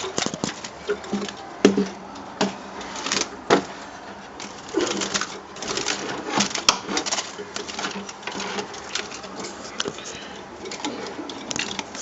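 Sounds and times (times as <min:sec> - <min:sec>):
cage clicks and rattles: 0:00.0 - 0:12.0.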